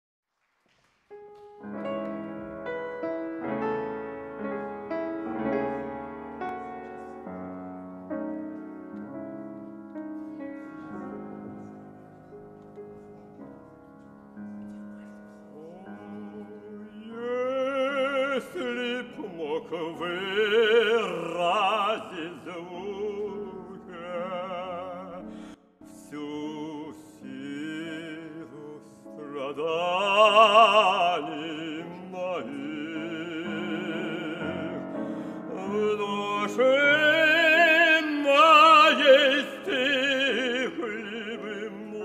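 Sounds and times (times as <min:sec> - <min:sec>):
piano chords: 0:01.1 - 0:42.0
operatic singer with vibrato: 0:15.5 - 0:42.0.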